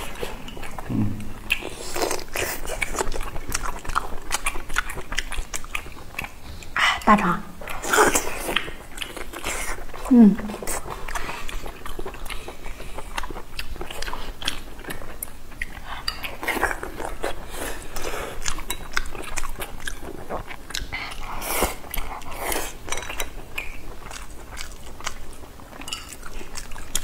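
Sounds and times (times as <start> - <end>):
biting and chewing food: 0.0 - 6.8, 7.6 - 27.0.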